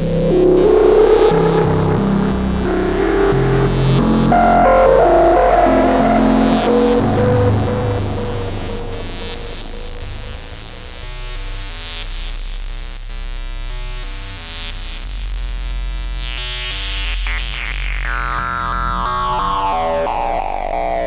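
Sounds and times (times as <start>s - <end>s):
synth line stepping in pitch: 0.0s - 11.3s
deep bass drone: 0.0s - 21.0s
bright tone sweeping downward: 0.8s - 11.1s, 18.9s - 21.0s.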